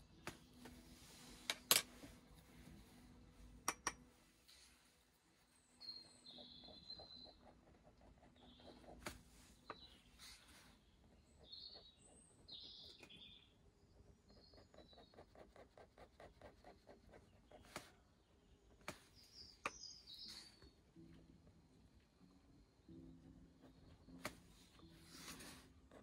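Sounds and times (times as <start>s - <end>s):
small birds chirping: 5.4s - 21.1s.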